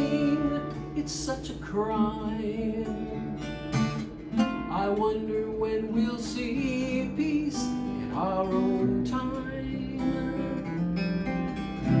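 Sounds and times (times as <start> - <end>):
person singing: 0.0 - 3.2
acoustic guitar strumming: 0.0 - 12.0.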